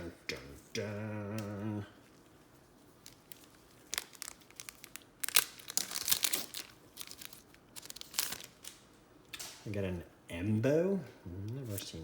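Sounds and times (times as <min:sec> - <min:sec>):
card pack wrapper tearing: 0:03.1 - 0:08.8.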